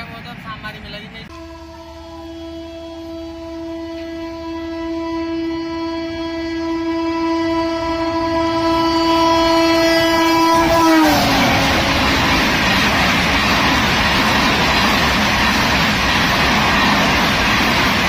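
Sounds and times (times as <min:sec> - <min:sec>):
locomotive horn blast: 0:01.3 - 0:12.7
train coaches rushing and rattling: 0:10.0 - 0:18.0.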